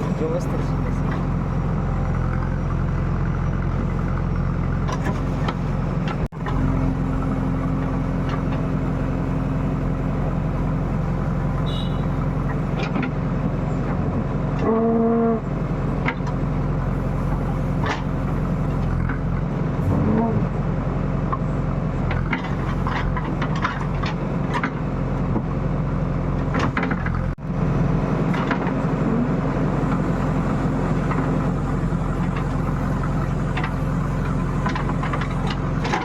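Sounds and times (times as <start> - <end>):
diesel digger engine running: 0.0 - 36.0
short horn toot: 11.6 - 12.2.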